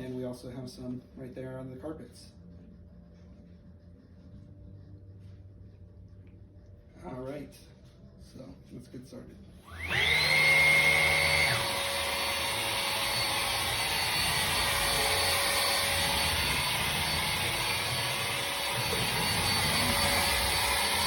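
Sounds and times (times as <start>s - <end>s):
vacuum motor whine: 9.6s - 21.0s.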